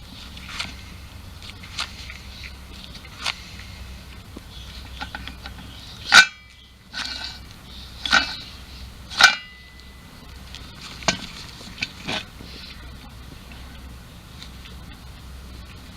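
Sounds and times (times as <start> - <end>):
steady low hum: 0.0 - 15.9
sharp metallic clanks: 4.8 - 10.1.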